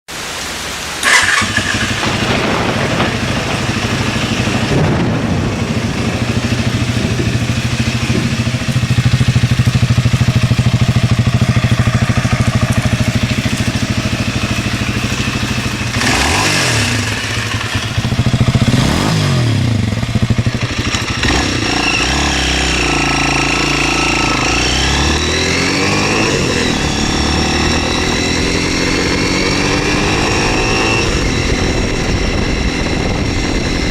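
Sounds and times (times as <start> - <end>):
motorcycle engine idling: 1.0 - 33.9
motorcycle engine revving: 1.0 - 33.9
motorcycle engine starting: 1.0 - 33.9
motorcycle pulling away: 1.0 - 33.9.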